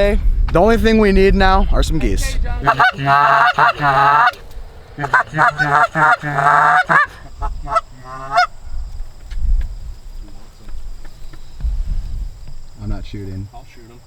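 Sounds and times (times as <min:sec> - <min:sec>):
goose honking and clucking: 0:02.6 - 0:04.4, 0:05.0 - 0:08.5.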